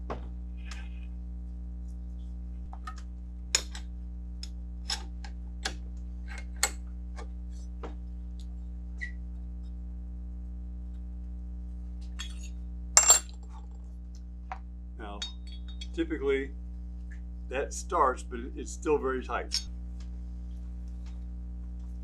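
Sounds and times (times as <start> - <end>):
steady electrical hum: 0.0 - 22.0
metal tools clicking and clinking: 12.2 - 13.5.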